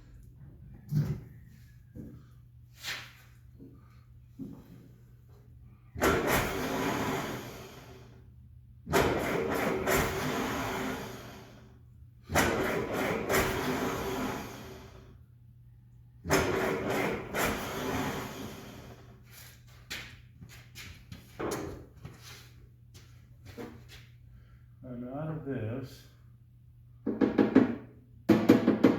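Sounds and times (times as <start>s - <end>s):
engine cranking by starter: 6.0s - 8.2s, 8.8s - 11.7s, 12.3s - 15.1s, 16.2s - 19.2s.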